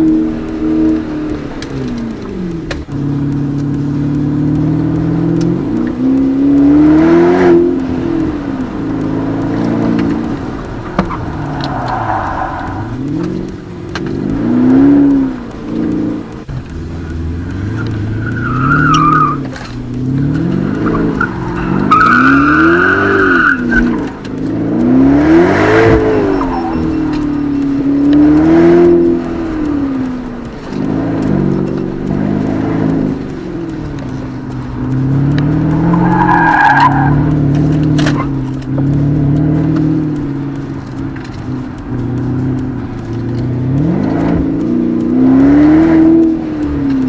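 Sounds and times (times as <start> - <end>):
car engine revving: 0.0 - 47.0
tyres squealing: 9.6 - 13.5, 17.0 - 24.5, 25.2 - 30.5, 33.3 - 43.2.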